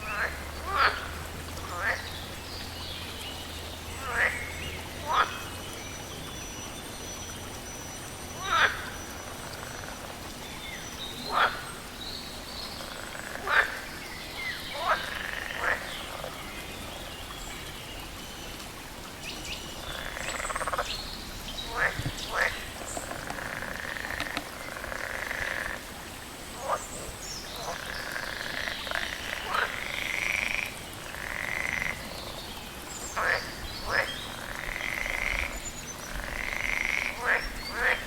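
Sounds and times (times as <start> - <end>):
frogs rattling calls: 0.0 - 2.1, 4.0 - 5.5, 8.4 - 10.2, 11.2 - 11.8, 12.8 - 16.4, 19.8 - 21.0, 21.6 - 25.9, 27.6 - 32.1, 33.1 - 38.0
frogs croaking: 0.0 - 16.7, 19.2 - 38.0
running water hiss: 0.0 - 38.0.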